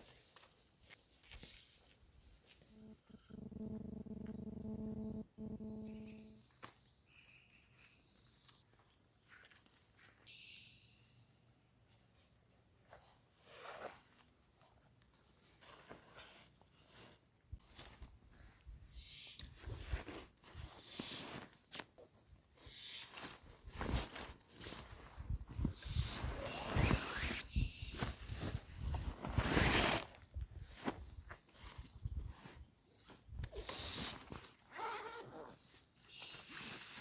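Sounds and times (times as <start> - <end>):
insects trilling: 0.0 - 37.0
low hum: 2.8 - 6.4
faint rustles and clicks: 12.9 - 37.0.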